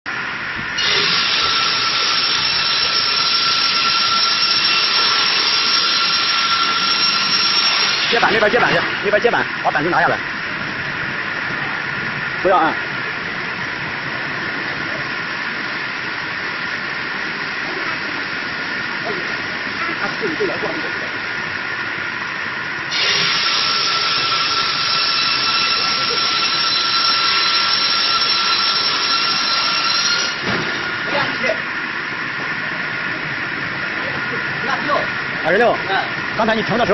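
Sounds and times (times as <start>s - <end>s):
electric sawmill hiss and whine: 0.1s - 36.9s.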